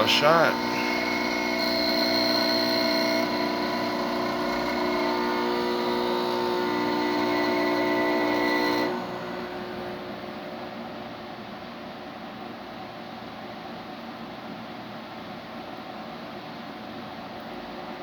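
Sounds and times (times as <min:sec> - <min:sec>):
espresso machine pump humming: 0:00.0 - 0:10.9.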